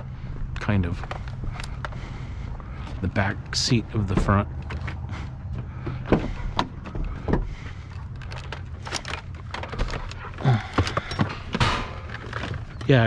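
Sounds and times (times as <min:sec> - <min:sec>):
steady low hum: 0:00.0 - 0:13.0
scrap metal knocks and clunks: 0:08.2 - 0:13.0.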